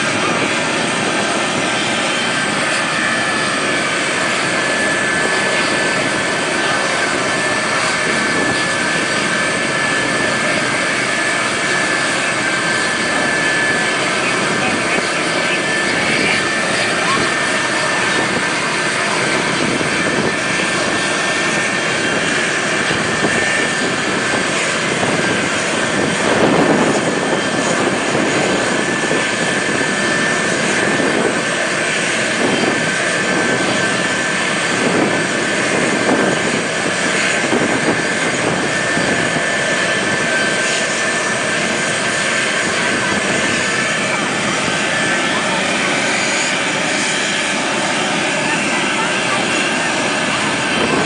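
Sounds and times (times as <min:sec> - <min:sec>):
aircraft engine drone: 0:00.0 - 0:51.0.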